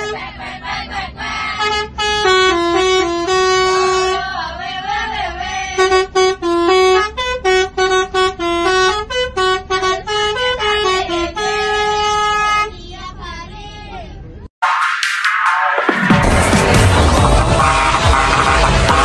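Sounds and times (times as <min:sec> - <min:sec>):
truck musical horn playing a tune: 0:00.0 - 0:00.6, 0:01.2 - 0:04.5, 0:05.7 - 0:12.8, 0:16.4 - 0:19.0.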